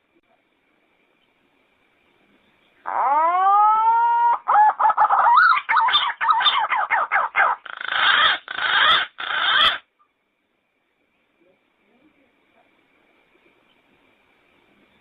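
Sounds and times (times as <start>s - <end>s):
pigeon calling: 2.8s - 9.9s.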